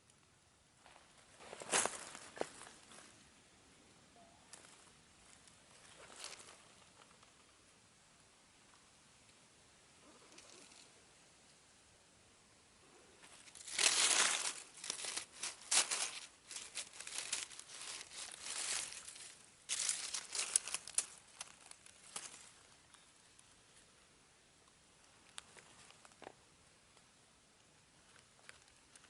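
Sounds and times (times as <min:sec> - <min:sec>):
leaf litter rustling and crackling: 0:04.5 - 0:07.4, 0:13.2 - 0:23.0.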